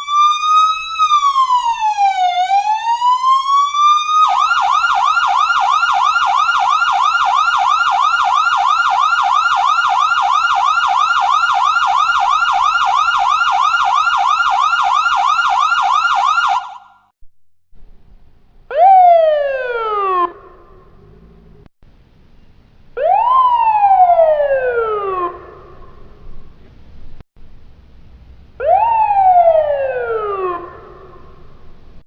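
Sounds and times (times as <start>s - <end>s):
electronic siren wailing and yelping: 0.0s - 17.1s, 18.7s - 21.2s, 23.0s - 25.8s, 28.6s - 31.4s.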